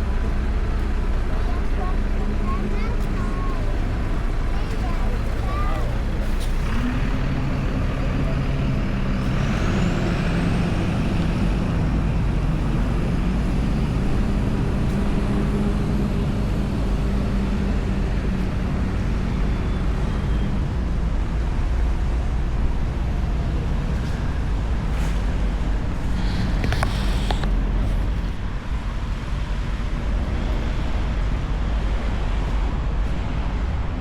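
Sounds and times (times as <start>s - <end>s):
vehicle engine humming: 0.0s - 34.0s.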